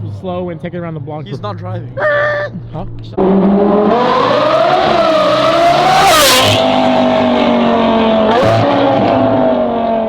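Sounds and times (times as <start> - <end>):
car engine accelerating: 3.0 - 10.0.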